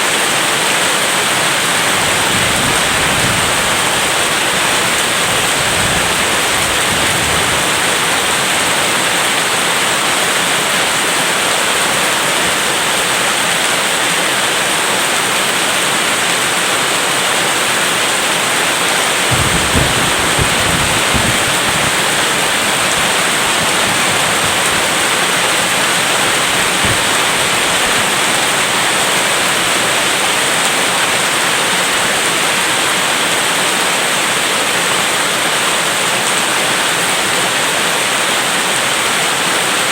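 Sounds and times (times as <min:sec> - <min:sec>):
heavy rain: 0:00.0 - 0:39.9
short low thumps: 0:19.3 - 0:22.3, 0:22.9 - 0:28.2.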